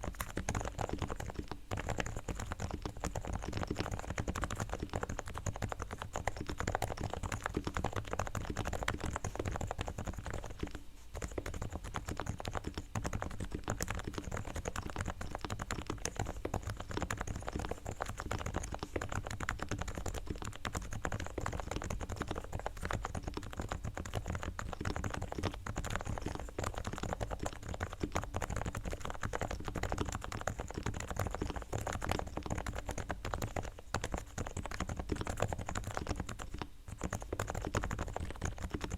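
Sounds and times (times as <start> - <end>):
keyboard typing: 0.0 - 38.9.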